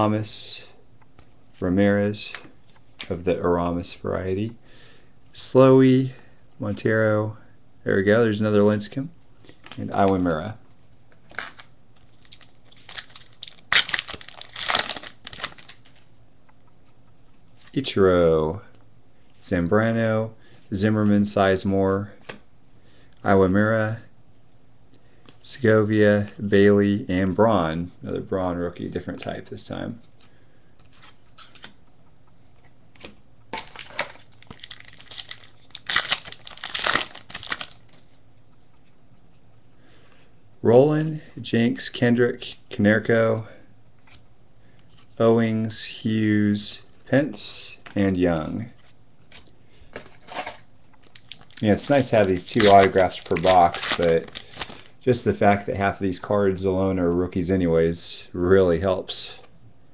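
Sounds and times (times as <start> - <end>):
card pack wrapper tearing and crinkling: 11.3 - 16.0, 33.5 - 38.0, 51.0 - 54.9.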